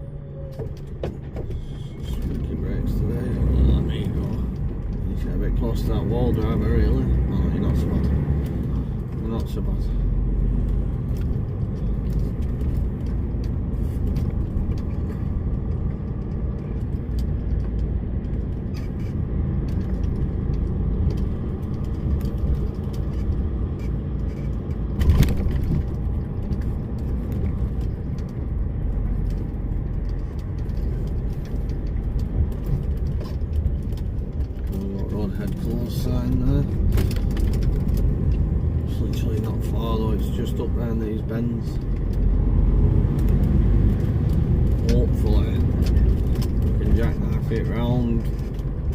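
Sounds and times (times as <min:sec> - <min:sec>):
diesel lorry engine running: 0:00.0 - 0:48.9
light clicks and rattles: 0:00.6 - 0:48.9.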